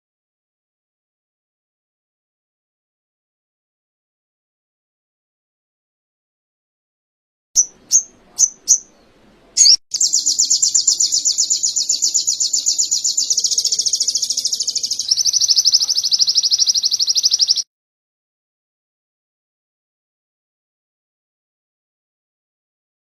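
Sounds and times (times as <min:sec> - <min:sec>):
songbird chirps and trill: 0:07.6 - 0:17.7.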